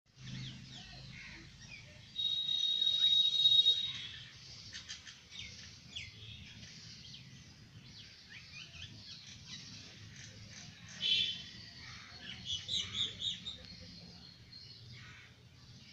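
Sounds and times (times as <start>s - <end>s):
small birds chirping: 0.1s - 15.9s
loud buzzy bird trill: 2.2s - 5.1s.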